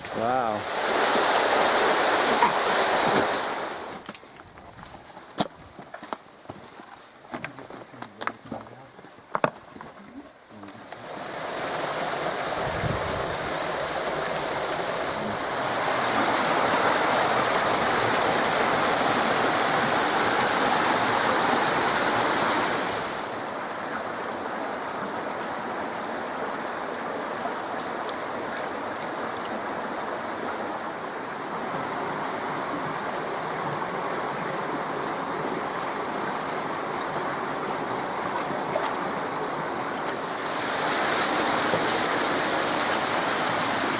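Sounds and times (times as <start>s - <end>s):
water rushing over rocks: 0.0s - 43.9s.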